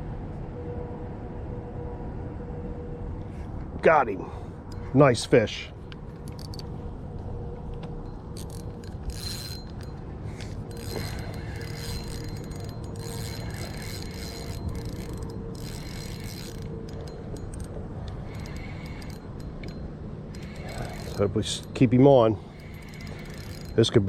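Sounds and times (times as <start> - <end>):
fishing reel ratcheting: 6.2 - 6.7, 8.1 - 21.9, 22.5 - 24.0.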